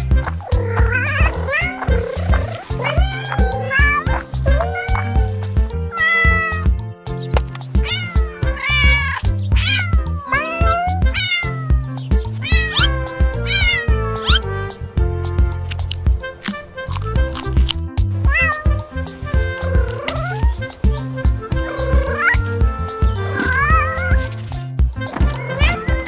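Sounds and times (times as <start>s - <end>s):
music with bass beat: 0.0s - 26.0s
cat meowing: 0.4s - 6.7s, 7.8s - 14.5s, 18.2s - 24.4s, 25.2s - 26.0s.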